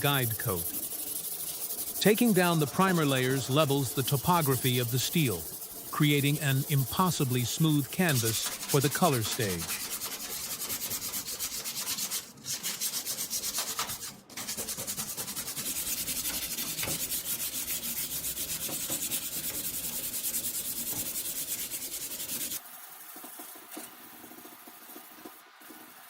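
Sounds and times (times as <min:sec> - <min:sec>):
sanding metal: 0:00.0 - 0:22.6.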